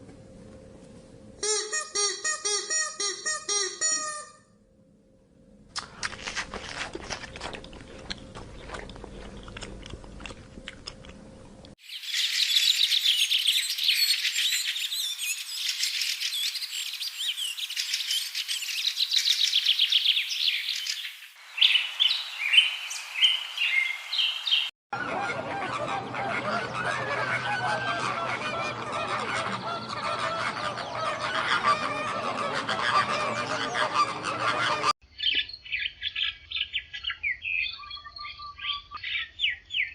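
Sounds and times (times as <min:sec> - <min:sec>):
birds chirping and twittering: 0:11.8 - 0:39.9
birds honking: 0:21.6 - 0:34.9.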